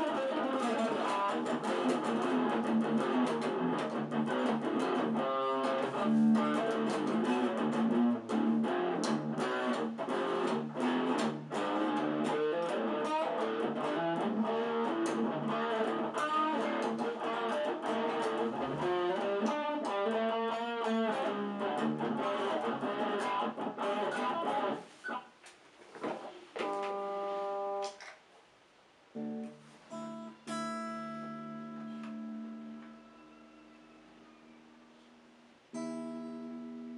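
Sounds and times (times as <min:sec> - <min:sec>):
electric guitar chords ringing: 0:00.0 - 0:24.8, 0:35.8 - 0:36.9
electric guitar picked notes: 0:00.0 - 0:25.2.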